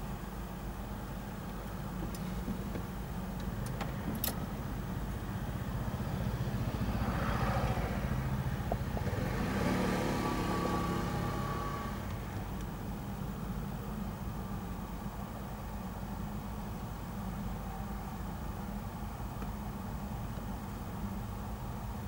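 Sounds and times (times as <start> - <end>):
car engine idling: 0.0 - 17.2
motorcycle passing: 5.6 - 12.0.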